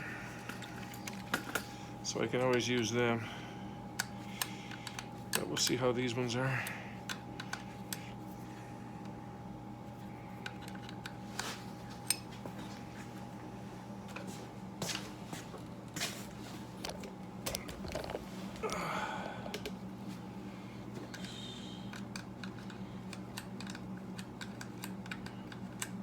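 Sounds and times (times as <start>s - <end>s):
steady low hum: 0.0s - 26.0s
hand tools clicking and tapping: 0.4s - 2.9s, 4.0s - 5.8s, 6.6s - 8.1s, 21.0s - 26.0s.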